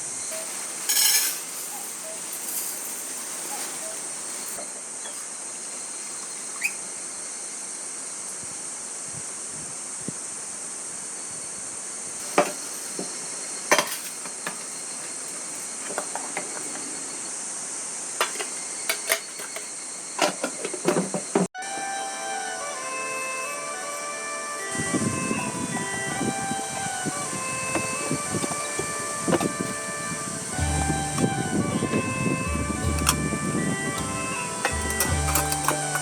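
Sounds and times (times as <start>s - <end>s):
high-pitched insect drone: 21.7s - 36.0s.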